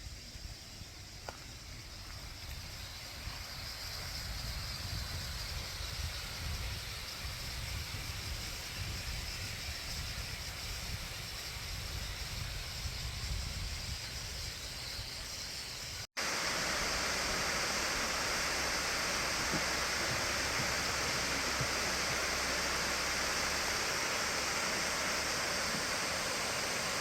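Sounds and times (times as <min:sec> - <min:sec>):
waterfall rushing: 0:16.2 - 0:27.0
low uneven rumble: 0:16.5 - 0:27.0.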